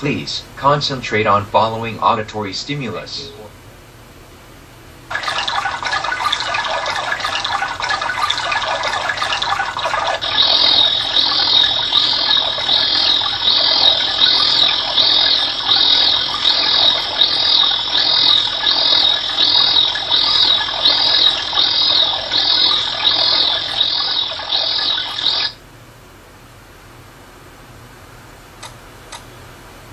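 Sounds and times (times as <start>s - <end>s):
water-like rushing: 5.1s - 25.6s
high repeating chirp: 9.2s - 25.6s.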